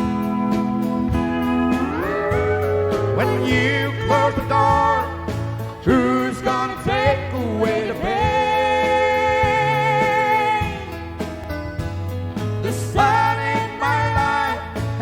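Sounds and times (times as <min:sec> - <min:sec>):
sliding guitar lead: 0:00.0 - 0:05.8
country band instrumental: 0:00.0 - 0:15.0.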